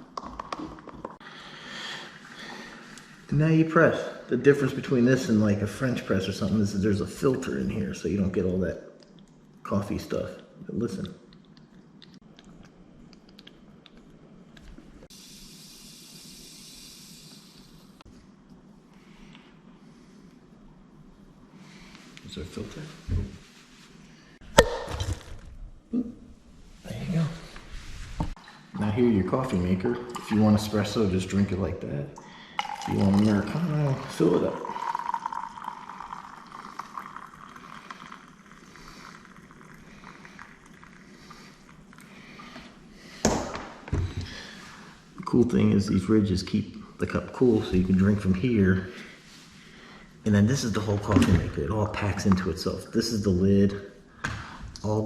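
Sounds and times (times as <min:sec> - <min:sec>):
air hissing through coffee filter: 0:15.0 - 0:18.1, 0:34.0 - 0:43.5
hot water pouring into cup: 0:32.4 - 0:42.2.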